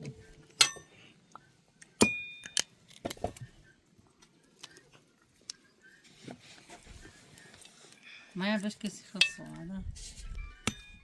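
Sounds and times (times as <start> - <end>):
dishes and utensils clinking: 9.2 - 9.6.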